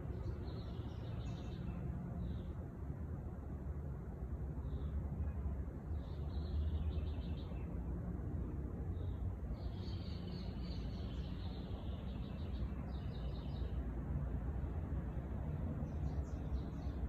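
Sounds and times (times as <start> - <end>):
songbird singing: 0.0 - 2.7, 4.6 - 8.0, 8.9 - 14.0, 15.0 - 17.0.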